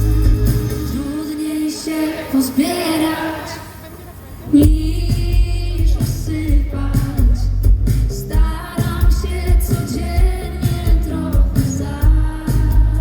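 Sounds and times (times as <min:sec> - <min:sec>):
drum beat: 0:00.0 - 0:01.0, 0:04.6 - 0:13.0
heavy bass: 0:00.0 - 0:01.2, 0:04.6 - 0:13.0
live pop band playing: 0:00.0 - 0:01.3, 0:04.6 - 0:13.0
person singing: 0:08.3 - 0:13.0.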